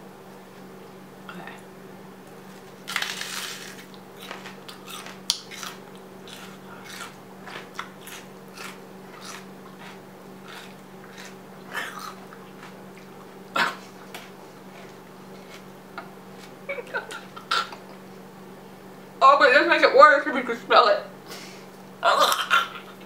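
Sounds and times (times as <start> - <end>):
raw onion being chewed: 2.2 - 18.0.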